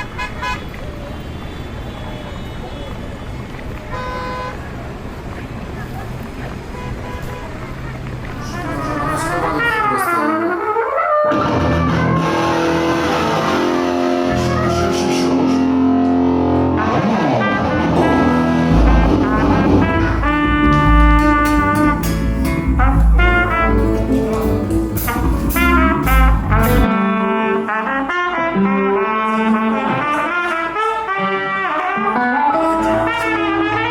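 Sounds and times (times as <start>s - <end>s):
brass notes: 0.0s - 4.7s, 8.4s - 33.9s
live rock band playing: 10.7s - 33.9s.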